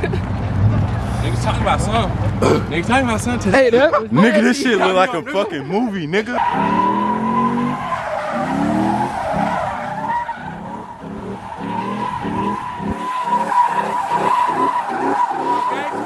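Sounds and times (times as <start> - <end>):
tyres squealing: 6.2 - 16.0
car engine revving: 6.4 - 16.0.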